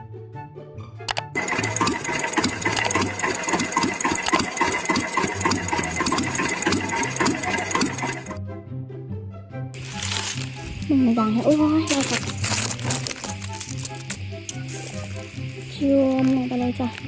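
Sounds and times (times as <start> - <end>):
high machine whine: 1.4 - 8.4, 9.8 - 17.0
machine clattering: 1.4 - 8.4.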